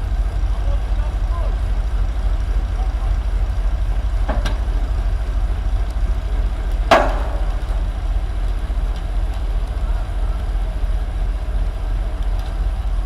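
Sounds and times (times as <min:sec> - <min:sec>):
heavy diesel machinery running: 0:00.0 - 0:13.0
loud crack: 0:02.7 - 0:09.9
sharp knock: 0:06.9 - 0:07.8.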